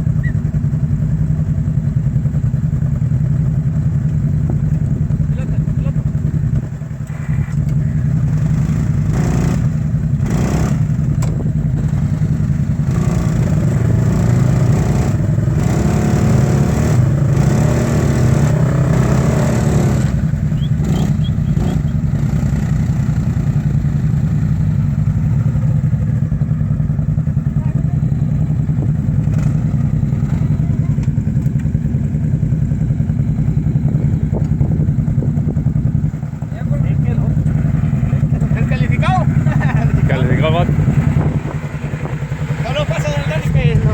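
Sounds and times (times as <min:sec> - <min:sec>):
motorcycle engine revving: 0:00.0 - 0:43.9
noisy gusts: 0:40.0 - 0:43.9.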